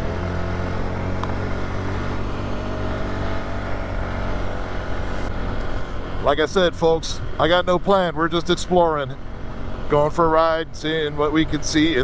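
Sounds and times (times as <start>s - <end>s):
quad engine running: 0.0s - 8.6s.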